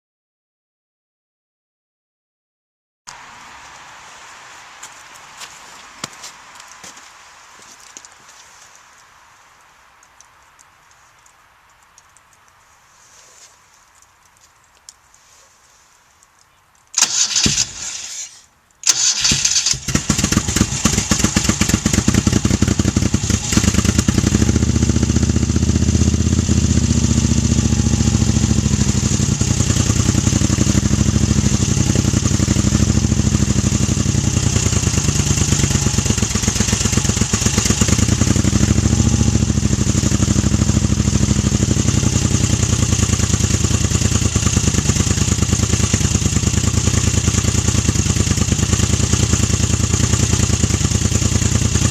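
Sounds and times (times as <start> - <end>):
motorcycle engine idling: 18.8 - 51.9.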